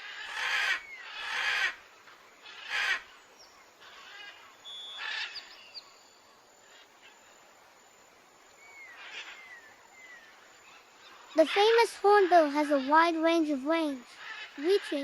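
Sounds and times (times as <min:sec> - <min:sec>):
loud harsh bird calls: 0:00.0 - 0:01.8, 0:03.8 - 0:06.0, 0:08.8 - 0:15.0.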